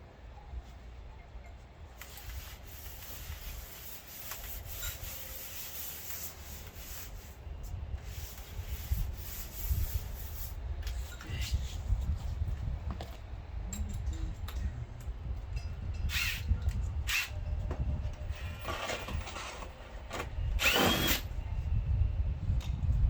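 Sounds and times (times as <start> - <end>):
hands rubbing and scraping: 2.0 - 7.4.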